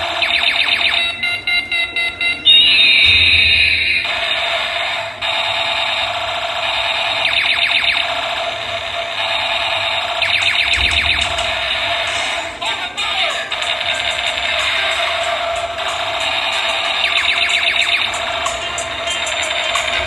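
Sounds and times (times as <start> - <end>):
electronic alarm siren: 0.0 - 12.6, 13.4 - 20.0.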